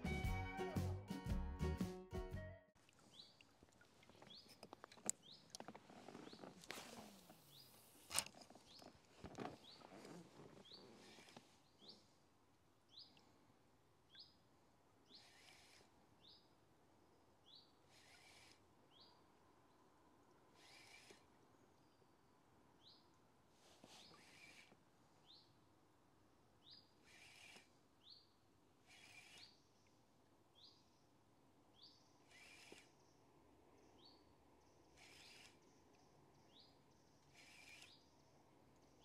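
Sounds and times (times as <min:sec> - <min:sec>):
soft rustles: 0:03.8 - 0:12.1, 0:23.5 - 0:24.3
small bird chirping: 0:04.2 - 0:06.5, 0:07.4 - 0:09.0, 0:09.6 - 0:09.9, 0:10.6 - 0:12.1, 0:14.1 - 0:14.4, 0:15.0 - 0:16.5, 0:17.4 - 0:19.2, 0:24.0 - 0:25.6, 0:26.6 - 0:31.0, 0:31.7 - 0:33.2, 0:33.8 - 0:39.0.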